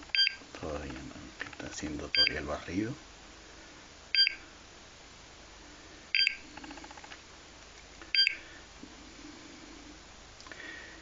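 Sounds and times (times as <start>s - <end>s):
gas detector beeping: 0.1s - 0.4s, 2.1s - 2.4s, 4.1s - 4.4s, 6.1s - 6.4s, 8.1s - 8.4s.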